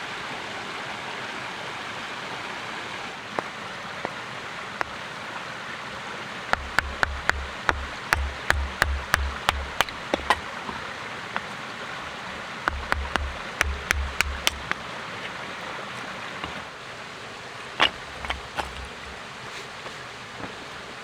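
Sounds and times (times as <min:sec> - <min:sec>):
dull thump: 0:06.6 - 0:10.5, 0:12.7 - 0:14.8
sharp clicks and knocks: 0:06.6 - 0:10.5, 0:12.7 - 0:14.8.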